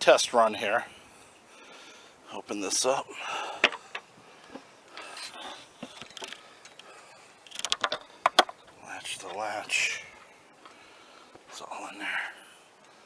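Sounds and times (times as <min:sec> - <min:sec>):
rapid clatter of clicks: 0:07.5 - 0:08.6.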